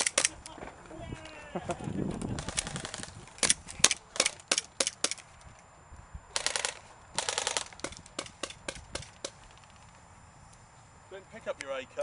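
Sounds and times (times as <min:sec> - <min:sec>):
airsoft gun full-auto bursts: 0:02.4 - 0:05.2, 0:06.3 - 0:09.1.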